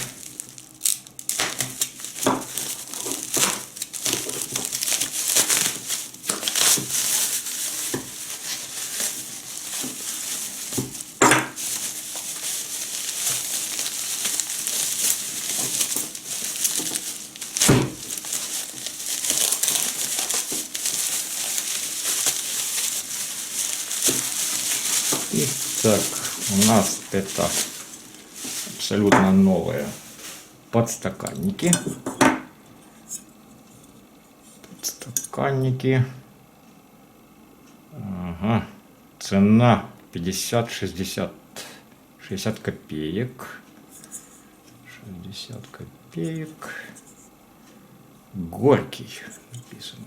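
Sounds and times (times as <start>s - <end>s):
packaging crinkling: 0.0s - 30.6s.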